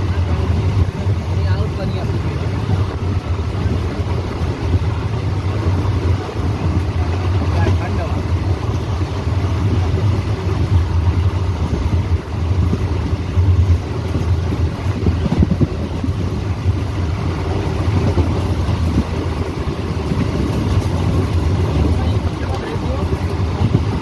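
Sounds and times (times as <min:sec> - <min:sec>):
train wheels rumbling on rails: 0:00.0 - 0:24.0
wind rushing: 0:00.0 - 0:24.0.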